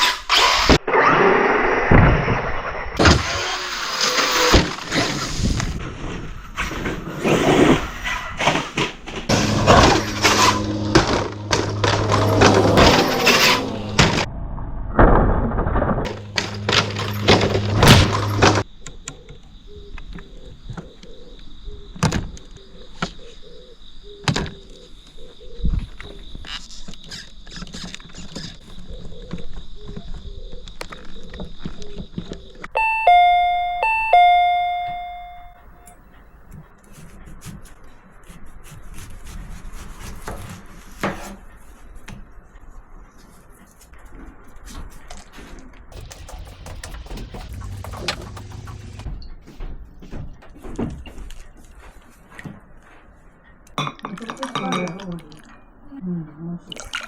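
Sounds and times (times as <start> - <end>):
two-note ding-dong chime: 32.8 - 35.9
faint high whine: 32.8 - 36.0
loud clatter with knocks: 45.9 - 51.3.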